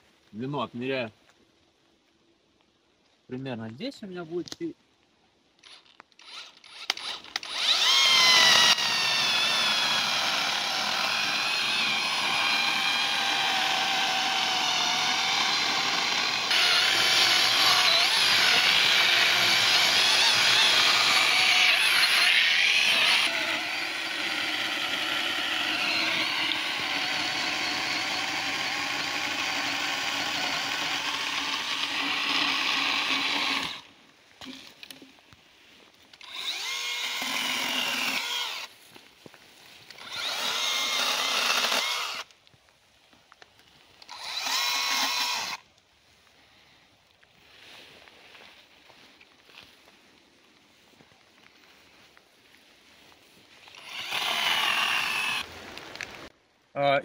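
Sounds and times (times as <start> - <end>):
electric chainsaw cutting log: 5.6 - 34.6, 36.2 - 38.7, 39.9 - 42.3, 44.0 - 45.6, 53.6 - 56.0.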